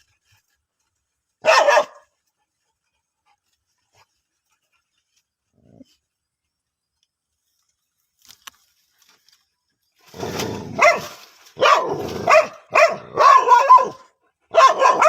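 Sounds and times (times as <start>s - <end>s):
dog barking: 1.4s - 2.1s, 10.7s - 15.0s.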